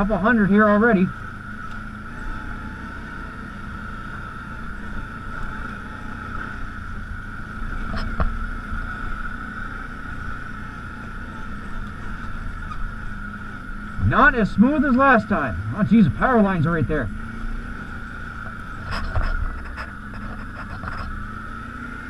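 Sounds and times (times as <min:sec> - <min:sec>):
quad bike engine whine: 0:00.0 - 0:22.0.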